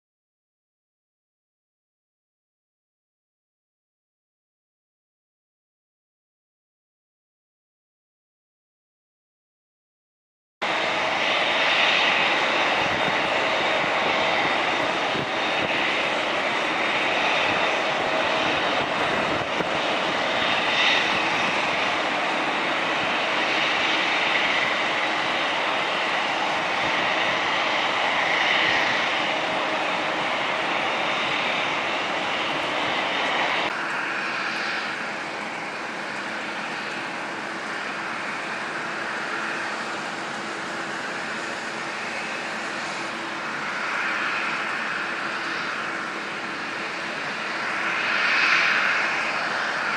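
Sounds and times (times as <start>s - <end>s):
jet engines whining: 10.6s - 49.9s.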